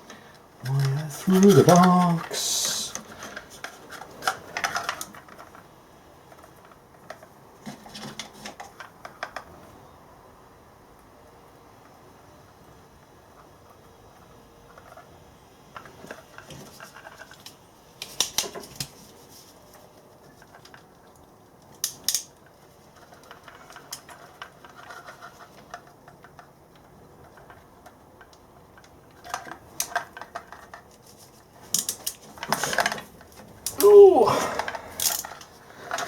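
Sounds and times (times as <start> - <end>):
hand tools clicking and clinking: 0.7 - 3.0, 33.6 - 35.5.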